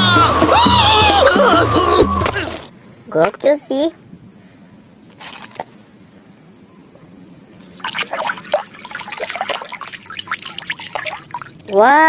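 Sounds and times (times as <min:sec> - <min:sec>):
water splashing and trickling: 0:05.1 - 0:05.8, 0:07.6 - 0:12.0.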